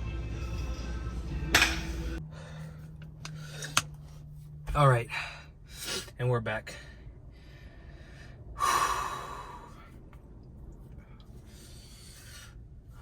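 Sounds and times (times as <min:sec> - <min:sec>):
man breathing heavily: 0:02.0 - 0:04.4, 0:05.0 - 0:10.3, 0:10.9 - 0:13.0.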